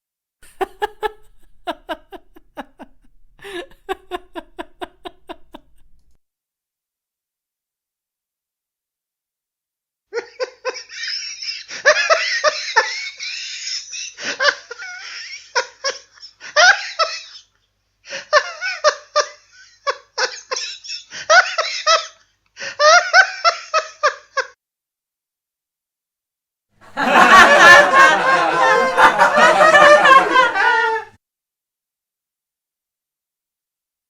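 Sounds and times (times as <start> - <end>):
high-pitched laughter: 0.4 - 6.2, 26.9 - 31.2.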